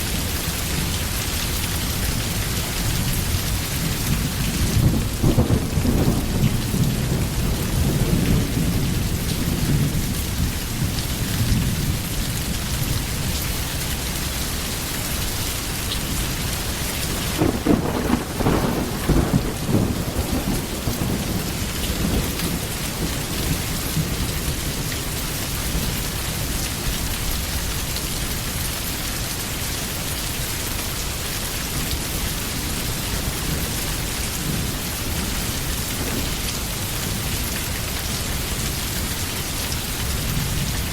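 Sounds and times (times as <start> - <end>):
heavy rain: 0.0 - 40.9
rolling thunder: 3.2 - 12.1, 16.6 - 25.0.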